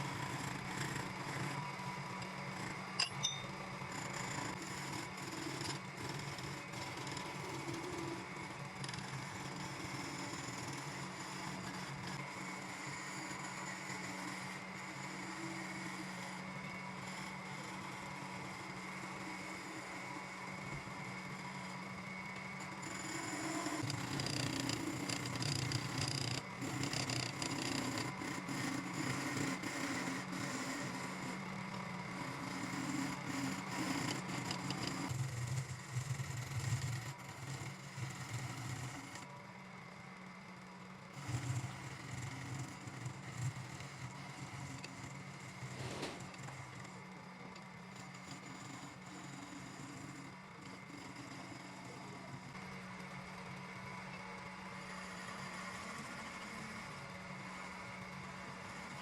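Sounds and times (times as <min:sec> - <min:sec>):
wood lathe motor running: 0:00.0 - 0:59.0
turning tool scraping wood: 0:22.6 - 0:31.4, 0:32.1 - 0:39.3, 0:41.2 - 0:47.0, 0:47.9 - 0:51.9.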